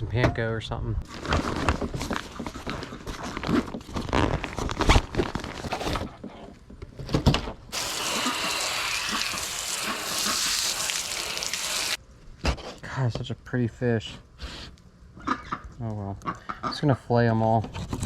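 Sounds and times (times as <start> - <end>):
water running from tap: 7.7 - 12.0.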